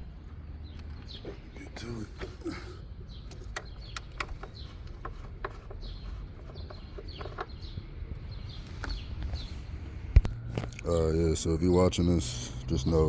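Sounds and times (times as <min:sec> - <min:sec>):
birds chirping: 0:00.0 - 0:13.0
sharp clicks and knocks: 0:03.2 - 0:09.4.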